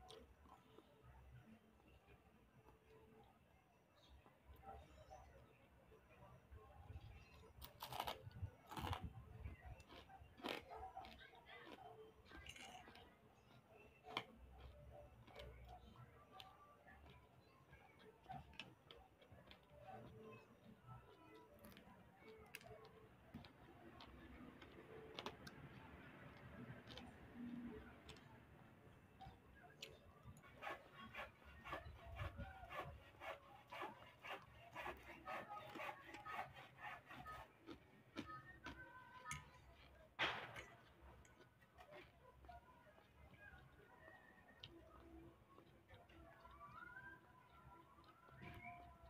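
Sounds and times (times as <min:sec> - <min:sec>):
person chewing: 0:07.6 - 0:09.1, 0:09.8 - 0:15.5, 0:26.8 - 0:27.1
person chewing crispy food: 0:07.6 - 0:17.2, 0:21.2 - 0:28.3, 0:37.6 - 0:40.0.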